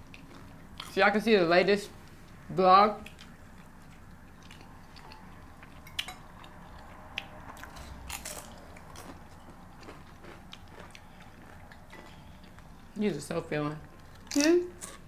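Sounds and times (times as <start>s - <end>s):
person chewing food: 0.0s - 1.0s, 2.0s - 13.0s, 13.8s - 15.0s.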